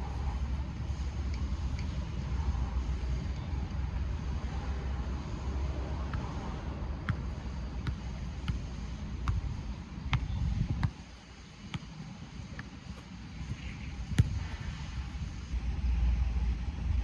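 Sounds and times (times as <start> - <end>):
low wind rumble: 0.0 - 17.0
football being kicked: 7.0 - 11.0, 11.7 - 14.9.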